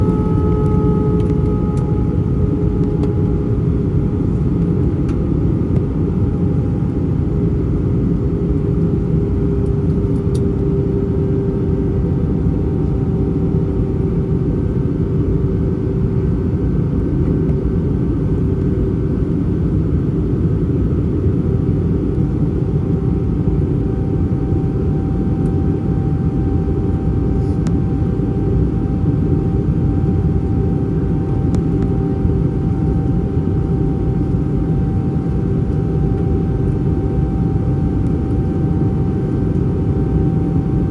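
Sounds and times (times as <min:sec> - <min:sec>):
faint engine tones: 0:00.0 - 0:07.4
airplane cabin engine rumble: 0:00.0 - 0:40.9.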